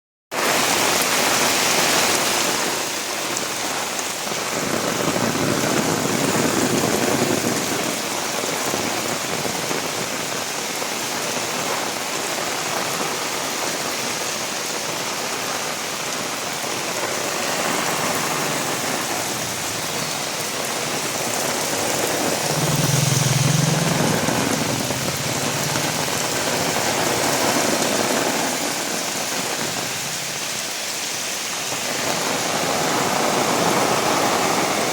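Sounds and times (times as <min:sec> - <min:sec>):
heavy rain pattering: 0:00.3 - 0:34.9
low rumble: 0:21.7 - 0:27.8.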